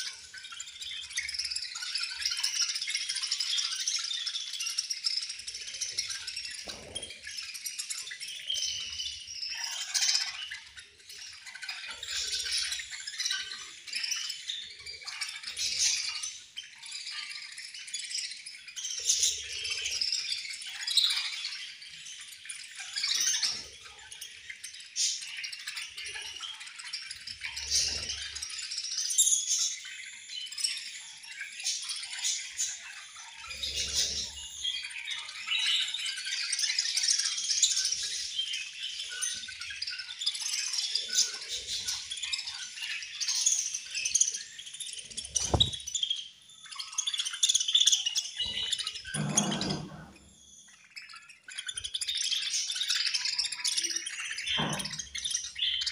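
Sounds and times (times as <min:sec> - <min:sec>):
budgerigars chirping: 0:30.8 - 0:55.9.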